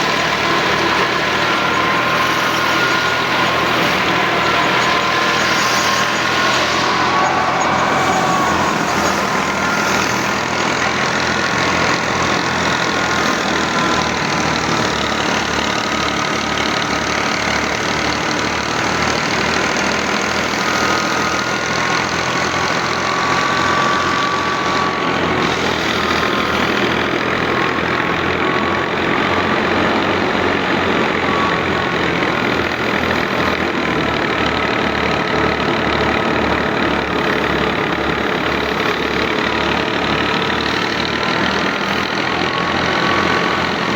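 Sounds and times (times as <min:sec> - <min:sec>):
thin wavering whine: 0:00.0 - 0:14.8
tractor diesel engine chugging: 0:00.0 - 0:43.9.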